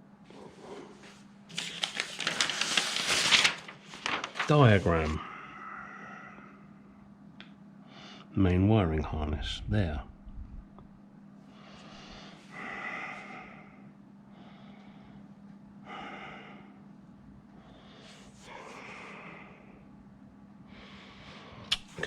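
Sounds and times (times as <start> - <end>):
faint steady hum: 0.0 - 22.0
man breathing out heavily: 11.6 - 13.8, 15.8 - 16.8.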